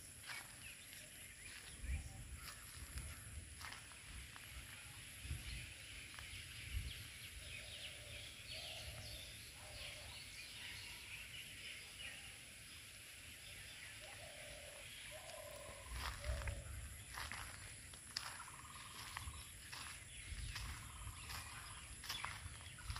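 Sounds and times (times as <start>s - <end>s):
birds chirping: 0.0s - 22.9s
wind noise on microphone: 1.7s - 7.7s, 19.2s - 22.9s.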